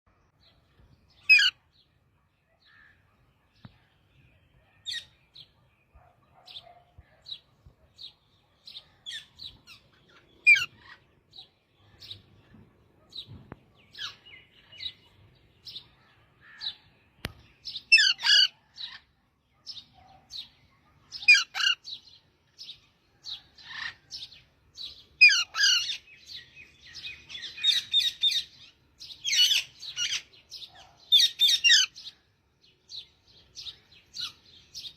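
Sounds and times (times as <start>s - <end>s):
parrot chirping: 1.3s - 1.5s, 10.4s - 11.0s
parrot harsh squawk: 1.3s - 1.6s, 10.5s - 11.0s, 17.9s - 19.0s, 21.3s - 21.8s, 25.2s - 26.0s.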